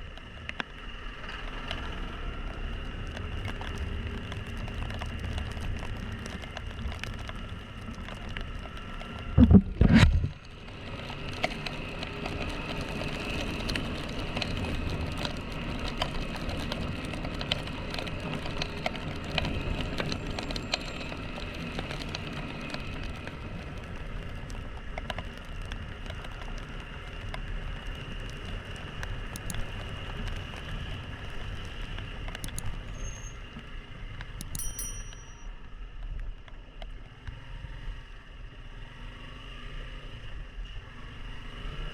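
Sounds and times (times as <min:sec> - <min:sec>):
road and wind noise: 0:00.0 - 0:41.9
loud thumps: 0:09.4 - 0:10.4.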